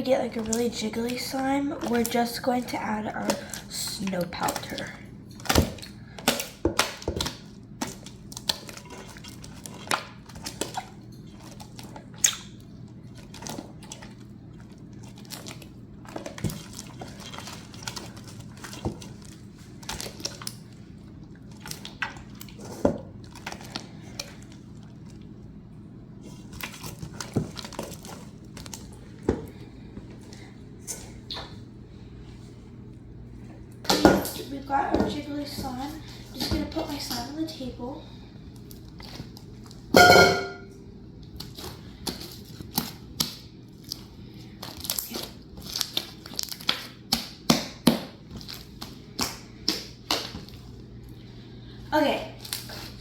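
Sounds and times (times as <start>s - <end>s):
slime squelching and popping: 0.3s - 22.6s, 41.3s - 50.6s.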